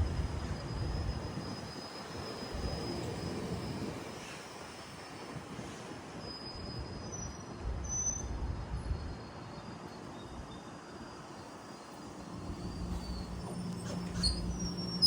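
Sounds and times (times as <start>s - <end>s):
train rumbling: 12.0s - 15.0s.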